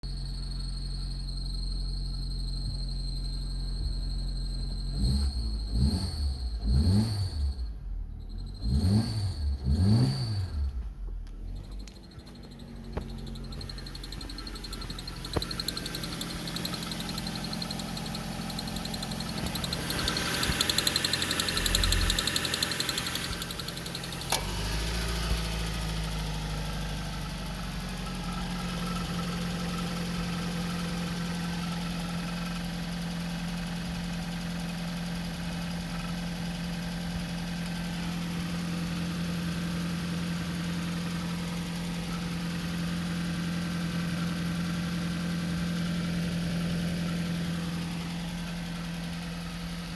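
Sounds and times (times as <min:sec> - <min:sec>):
car engine running: 0:00.1 - 0:49.9
sharp click: 0:11.8 - 0:17.9.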